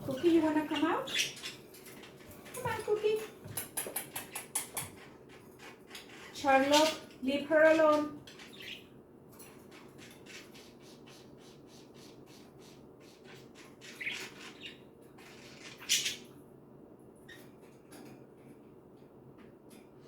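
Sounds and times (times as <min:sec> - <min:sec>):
budgerigars chirping: 0:00.2 - 0:01.6, 0:07.7 - 0:08.9, 0:10.0 - 0:16.3.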